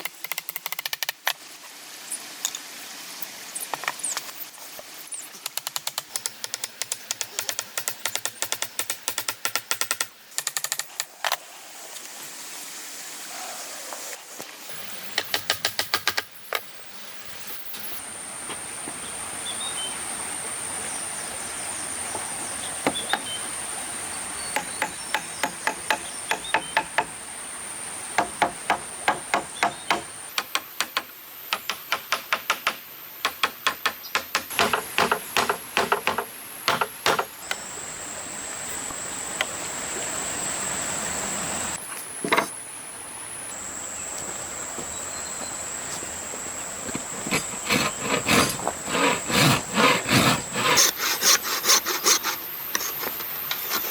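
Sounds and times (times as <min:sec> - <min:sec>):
hammer knocking on wood: 0:28.2 - 0:37.3.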